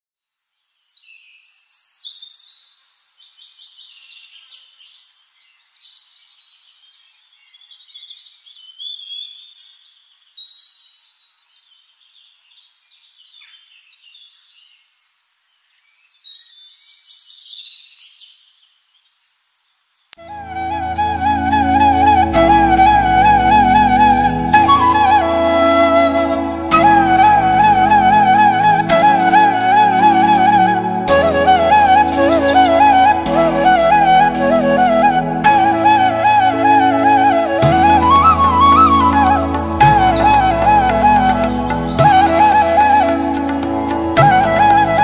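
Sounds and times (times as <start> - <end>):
birds singing and calling: 0.8 - 20.1
flute tune: 20.2 - 45.0.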